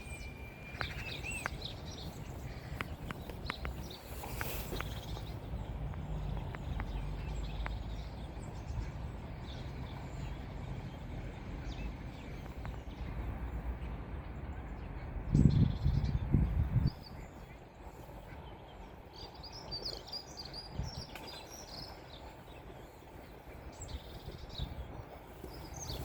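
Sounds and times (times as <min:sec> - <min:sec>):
bird chirps: 0:00.0 - 0:05.7.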